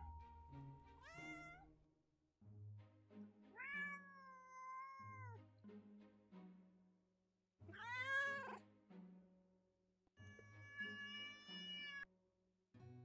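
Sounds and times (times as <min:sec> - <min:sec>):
soft background music: 0:00.0 - 0:01.7, 0:02.5 - 0:06.9.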